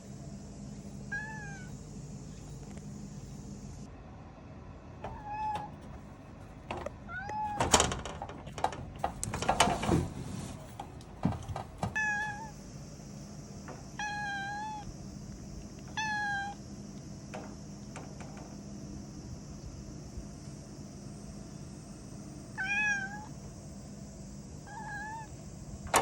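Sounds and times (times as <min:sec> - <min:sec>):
cat meowing: 0:01.1 - 0:01.8, 0:05.1 - 0:05.8, 0:07.0 - 0:07.6, 0:12.0 - 0:12.6, 0:14.0 - 0:14.9, 0:15.9 - 0:16.6, 0:22.6 - 0:23.4, 0:24.7 - 0:25.3.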